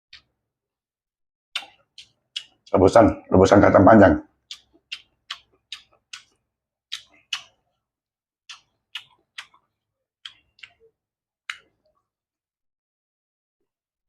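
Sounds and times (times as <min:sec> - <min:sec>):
chewing crunches: 0:01.5 - 0:02.8, 0:04.4 - 0:07.8, 0:08.5 - 0:11.9
mouth clicks: 0:01.5 - 0:07.7, 0:08.5 - 0:11.9.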